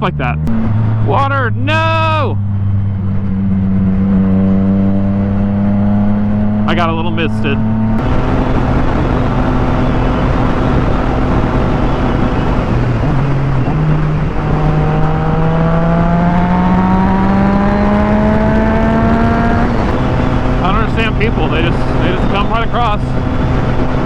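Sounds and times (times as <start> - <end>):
motorcycle engine accelerating: 0.0 - 24.0
wind noise on microphone: 7.5 - 24.0.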